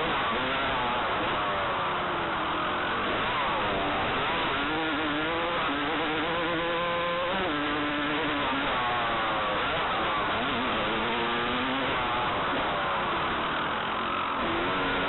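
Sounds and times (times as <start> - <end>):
constant rushing noise: 0.0 - 15.0
dirt bike engine revving: 0.0 - 15.0.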